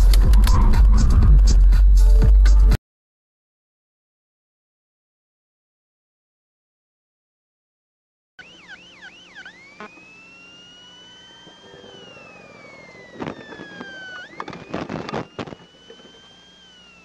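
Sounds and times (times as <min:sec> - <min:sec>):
emergency vehicle siren: 0:08.4 - 0:17.0.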